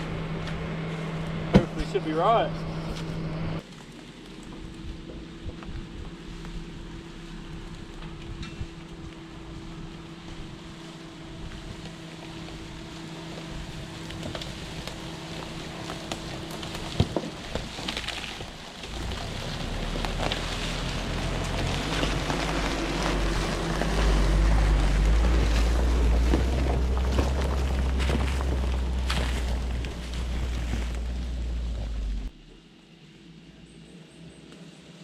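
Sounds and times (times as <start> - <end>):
car engine idling: 0.0 - 34.1
deep rumble: 11.2 - 32.7.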